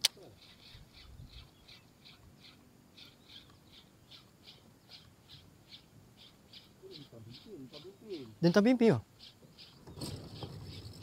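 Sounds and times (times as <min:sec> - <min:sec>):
short high bird calls: 0:00.1 - 0:08.5.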